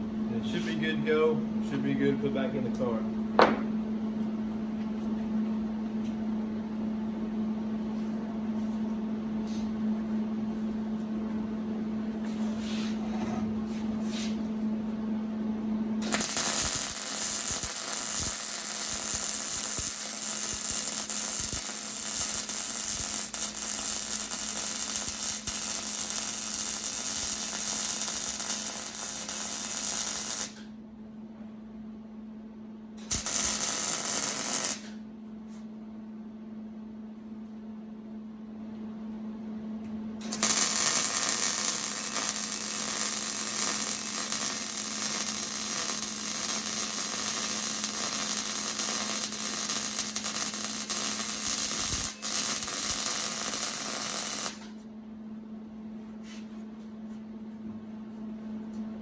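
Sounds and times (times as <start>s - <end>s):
electrical hum: 0.0s - 59.0s
welding arc crackling and hissing: 16.0s - 30.6s, 33.0s - 35.0s, 40.2s - 54.7s.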